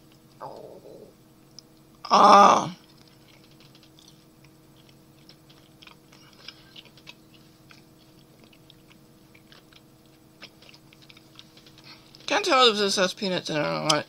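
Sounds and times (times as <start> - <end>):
faint steady hum: 0.0 - 14.0
mouth chewing with soft clicks: 2.8 - 12.3.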